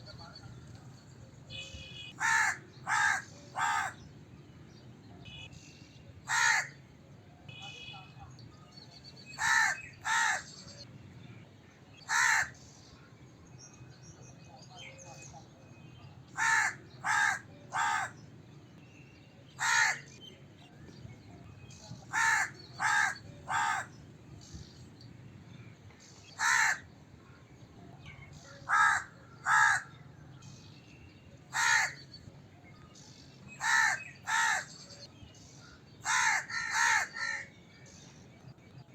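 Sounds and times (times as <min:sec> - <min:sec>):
crow cawing: 0:02.2 - 0:04.0, 0:06.3 - 0:06.8, 0:09.4 - 0:10.5, 0:12.1 - 0:12.6, 0:16.4 - 0:18.2, 0:19.6 - 0:20.1, 0:22.1 - 0:23.9, 0:26.4 - 0:26.8, 0:28.7 - 0:30.0, 0:31.5 - 0:32.0, 0:33.6 - 0:34.7, 0:36.0 - 0:37.5.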